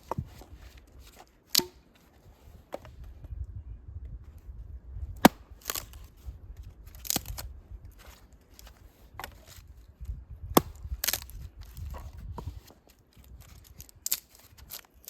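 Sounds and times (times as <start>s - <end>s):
sharp chopping strikes: 1.5s - 1.9s, 5.2s - 6.0s, 10.6s - 11.2s.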